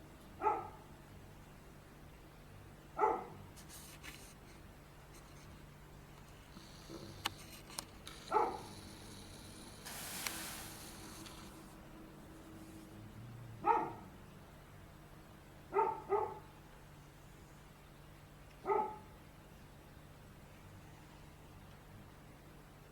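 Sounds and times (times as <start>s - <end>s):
dog barking: 0.4s - 0.9s, 3.0s - 3.4s, 8.2s - 8.9s, 13.6s - 14.1s, 15.7s - 16.5s, 18.6s - 19.1s
short hiss: 6.6s - 11.8s.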